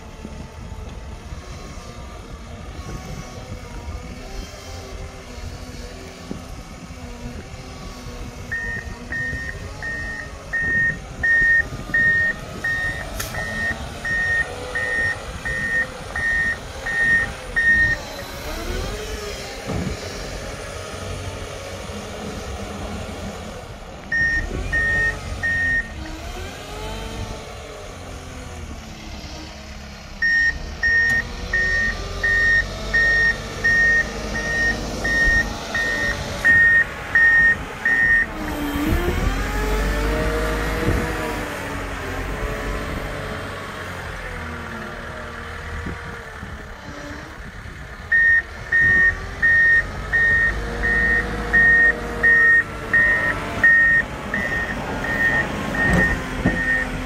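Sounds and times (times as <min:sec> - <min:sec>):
diesel engine running: 0:00.0 - 0:57.0
reverse alarm beeping: 0:08.5 - 0:18.0, 0:24.1 - 0:26.0, 0:30.2 - 0:38.3, 0:48.1 - 0:56.9.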